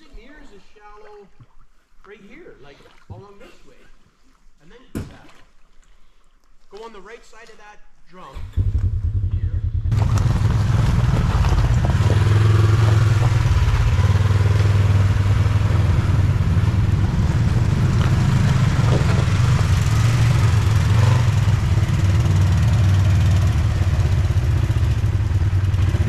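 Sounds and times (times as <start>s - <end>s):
utility vehicle engine running: 8.6s - 26.0s.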